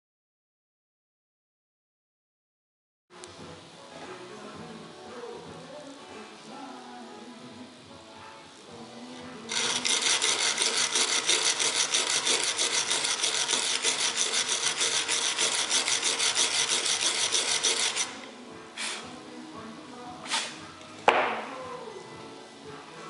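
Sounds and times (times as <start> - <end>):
scraping on plywood panel: 10.2 - 18.1.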